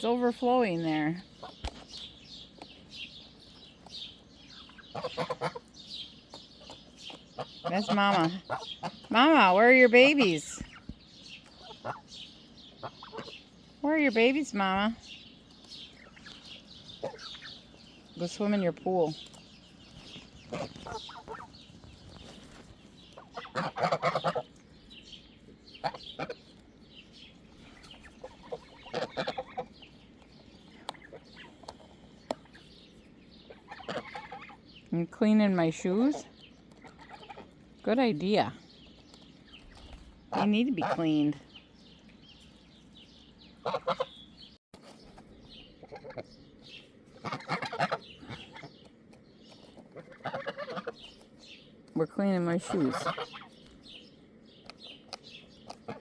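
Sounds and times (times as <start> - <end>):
poultry clucking: 0.0 - 34.9, 35.6 - 37.6, 43.2 - 44.5, 45.1 - 56.0
poultry rapid pulsing calls: 3.9 - 22.2, 23.1 - 26.4.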